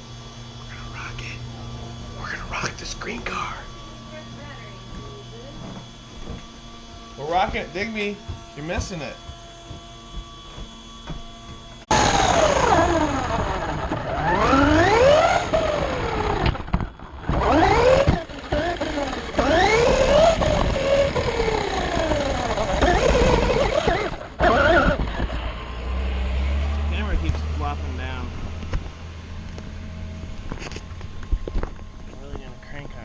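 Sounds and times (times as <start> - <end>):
rc car electric motor whine: 0.0 - 33.0
rough running noise: 4.4 - 11.9.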